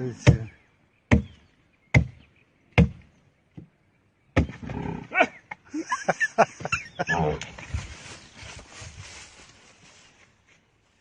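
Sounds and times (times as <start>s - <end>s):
sharp knocks: 2.8s - 3.0s.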